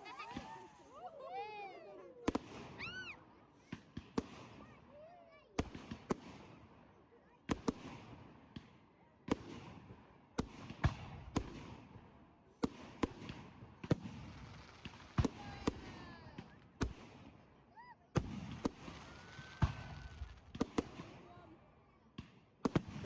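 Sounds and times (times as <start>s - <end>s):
fireworks bangs: 0.0s - 4.7s, 12.6s - 17.4s, 18.2s - 21.6s, 22.2s - 23.0s
fireworks crackle: 14.0s - 17.0s, 18.2s - 21.4s
whistling firework glides: 18.9s - 20.4s.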